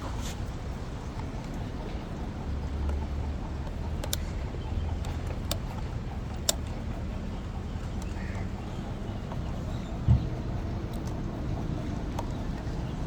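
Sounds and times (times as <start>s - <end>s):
steady low hum: 0.0s - 13.0s
plastic fuse box clicks: 4.0s - 4.4s.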